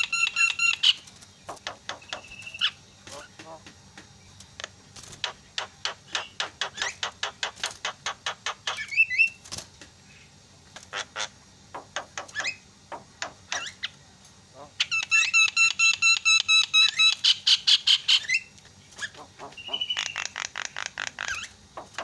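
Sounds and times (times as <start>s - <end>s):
bird wavering whistle: 0.0s - 1.0s, 14.8s - 20.4s.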